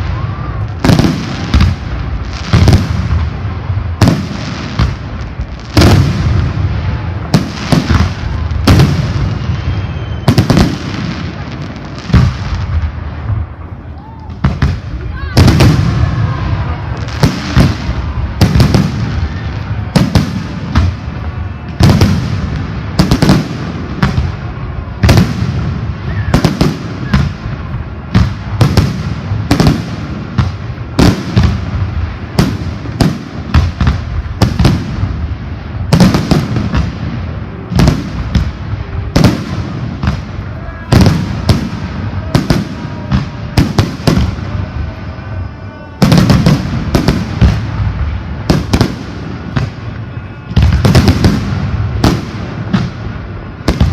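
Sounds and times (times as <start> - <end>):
fireworks bangs with booming rumble: 0.0 - 53.9.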